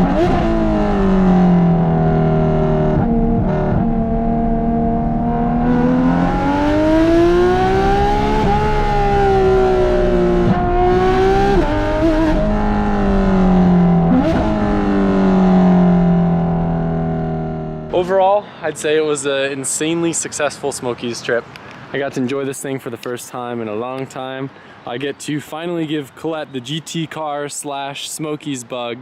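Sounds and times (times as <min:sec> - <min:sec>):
sports car engine accelerating: 0:00.0 - 0:18.0.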